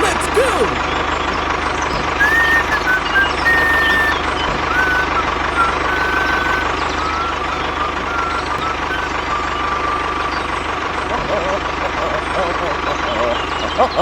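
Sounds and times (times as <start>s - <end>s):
tractor engine rumbling: 0.0s - 14.0s
high whistle-like tones: 2.0s - 11.4s.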